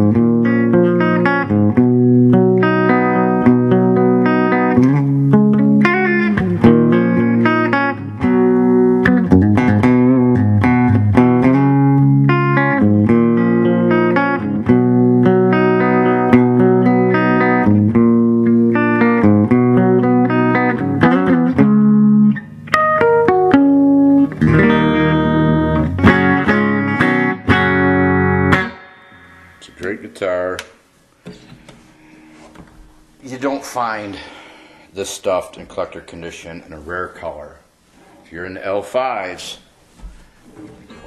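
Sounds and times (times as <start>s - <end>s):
electric guitar strummed chords: 0.0s - 30.4s.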